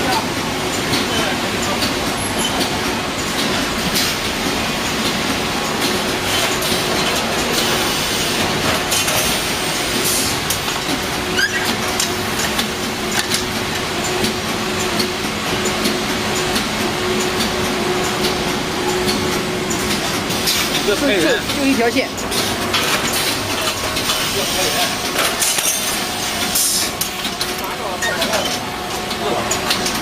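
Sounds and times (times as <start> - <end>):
machine hum: 0.3 - 30.0
short rising squeak: 11.3 - 11.8.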